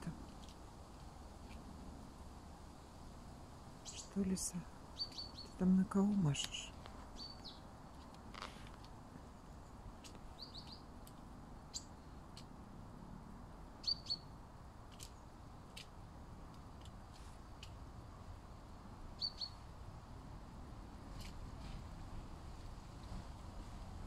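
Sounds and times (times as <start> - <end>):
small birds chirping: 0.0 - 12.7, 13.6 - 19.8.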